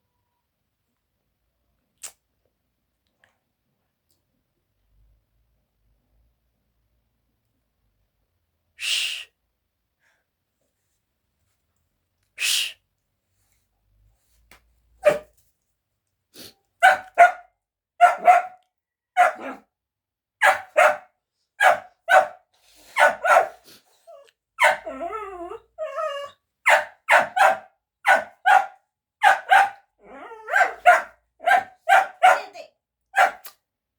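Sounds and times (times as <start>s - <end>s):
dog barking: 15.0s - 15.3s, 16.8s - 19.7s, 20.4s - 23.6s, 24.6s - 24.9s, 26.7s - 33.5s
dog whining: 24.0s - 26.4s, 30.0s - 31.0s.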